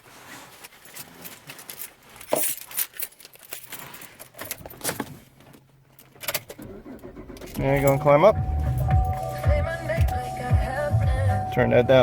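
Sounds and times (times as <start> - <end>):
keys jangling: 0.9 - 4.7.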